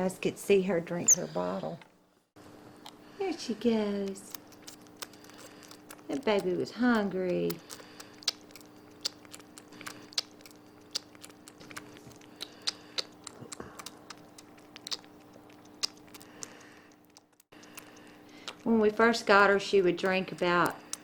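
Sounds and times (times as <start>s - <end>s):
faint steady hum: 0.0s - 21.0s
monkey sucking from bottle: 4.4s - 18.7s.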